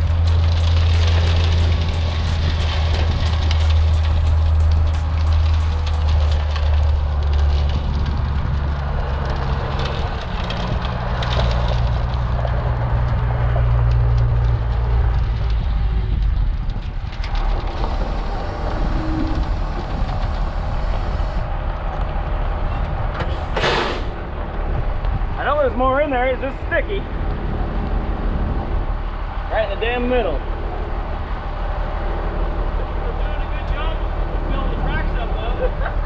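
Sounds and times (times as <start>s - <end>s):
diesel truck engine running: 0.0s - 25.4s
gravel rattling out of truck bed: 0.0s - 26.6s
air hiss: 23.3s - 24.2s.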